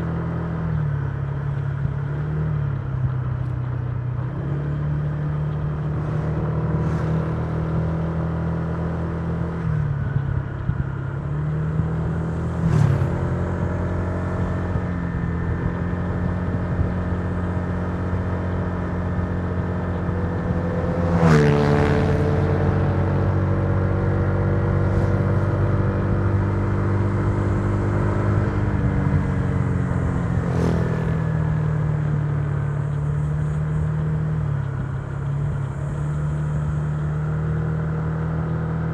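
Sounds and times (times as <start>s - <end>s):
scooter engine running: 28.6s - 35.4s.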